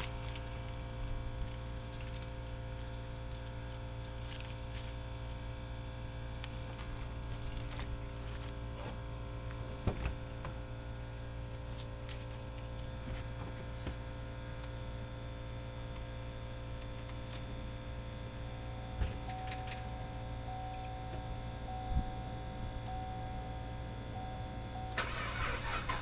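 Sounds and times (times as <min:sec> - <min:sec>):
car engine idling: 0:15.8 - 0:26.0.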